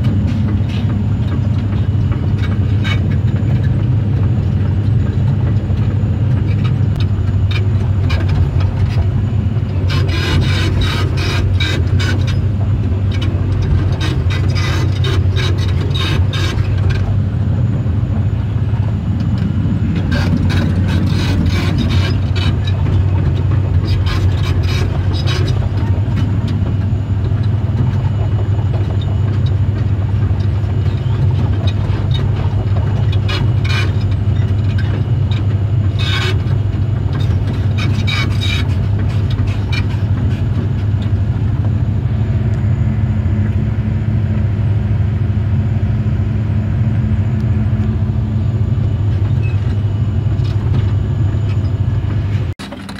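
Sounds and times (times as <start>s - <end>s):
diesel engine drone: 0.0s - 52.9s
track chains clicking and scraping: 19.4s - 26.6s, 52.6s - 52.9s.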